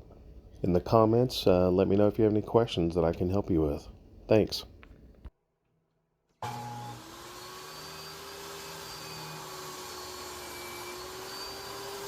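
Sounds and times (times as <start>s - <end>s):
electric motor spinning up: 6.4s - 12.0s.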